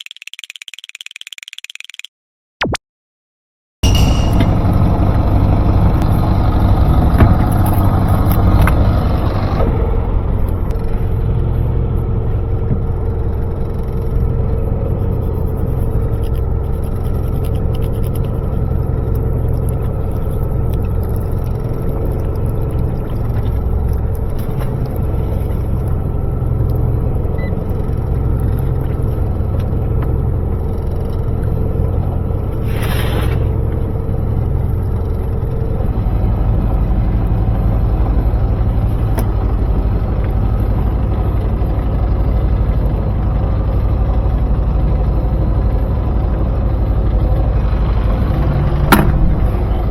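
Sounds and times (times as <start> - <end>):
boat engine droning: 3.8 - 49.9
brief hiss: 32.6 - 33.5.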